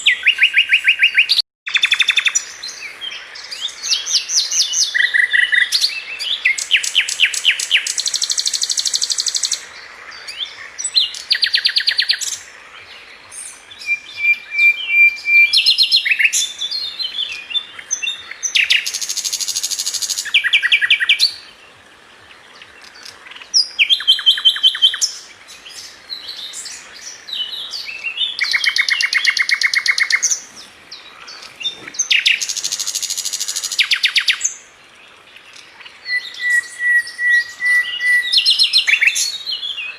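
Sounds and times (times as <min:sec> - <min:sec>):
thin whistled bird notes: 0:36.0 - 0:39.9.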